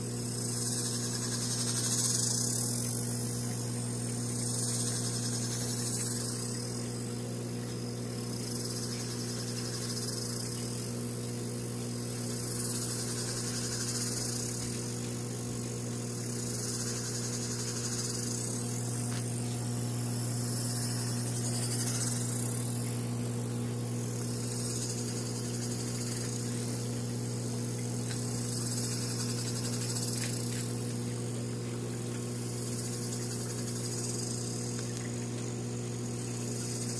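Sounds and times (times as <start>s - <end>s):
high buzzing hiss: 0.0s - 36.9s
pump motor humming: 0.0s - 36.9s.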